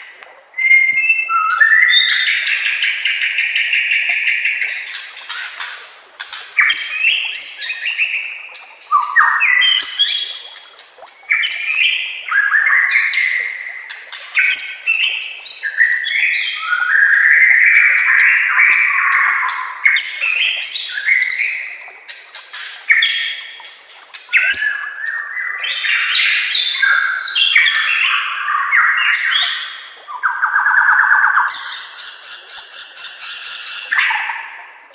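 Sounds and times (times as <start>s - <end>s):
bird singing whistles and trills: 0.6s - 5.6s, 6.6s - 10.4s, 11.2s - 21.8s, 24.2s - 34.5s.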